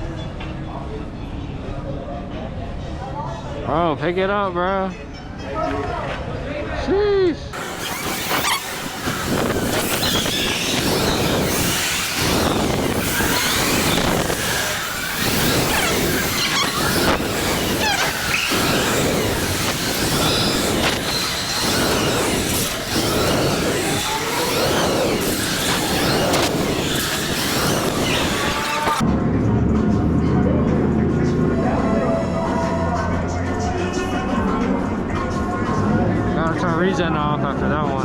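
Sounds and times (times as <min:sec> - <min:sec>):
rushing wind: 0:07.6 - 0:29.0
short high-pitched glides: 0:07.6 - 0:29.0
road noise: 0:07.6 - 0:36.2.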